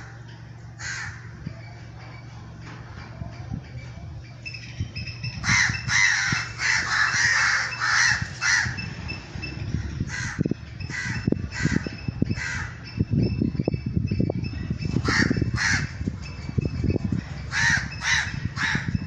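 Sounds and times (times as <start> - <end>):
crow cawing: 0.8 - 1.3, 5.4 - 8.8, 10.1 - 12.8, 15.0 - 16.0, 17.5 - 18.9.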